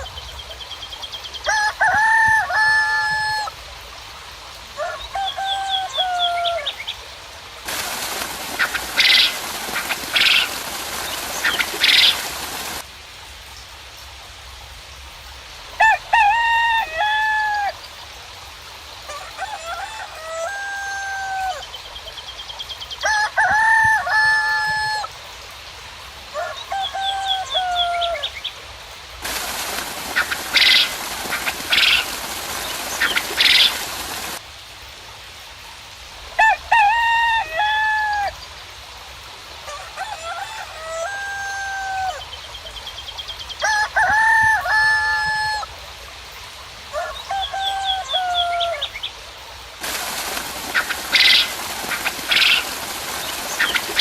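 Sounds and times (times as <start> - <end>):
roosters crowing: 1.4 - 3.6, 4.8 - 6.8, 15.8 - 17.8, 19.1 - 21.7, 23.0 - 25.2, 26.3 - 28.3, 36.4 - 38.4, 39.6 - 42.3, 43.6 - 45.7, 46.9 - 49.0, 49.8 - 54.0
harsh bird squawks: 30.1 - 32.1.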